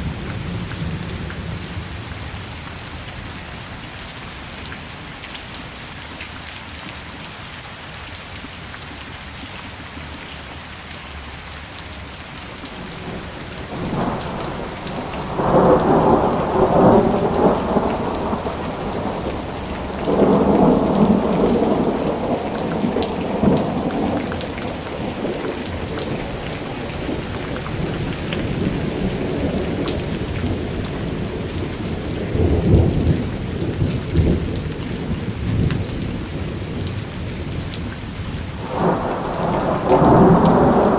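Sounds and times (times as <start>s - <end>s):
steady rain falling: 0.0s - 40.9s
thunder rolling: 12.7s - 37.9s, 38.5s - 40.9s.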